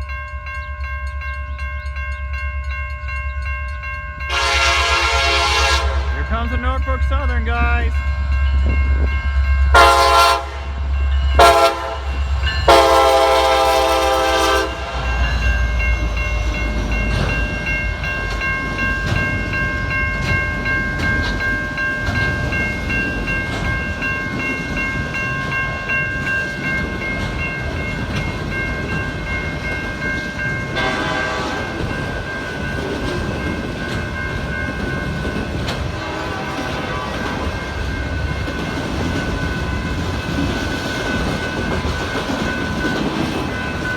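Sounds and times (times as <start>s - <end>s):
freight train rolling past: 0.0s - 43.9s
locomotive engine rumble: 0.5s - 43.9s
locomotive air horn: 4.3s - 6.3s, 9.7s - 10.8s, 11.4s - 15.1s, 30.8s - 31.8s, 36.0s - 37.4s
train wheel clatter: 11.4s - 43.9s.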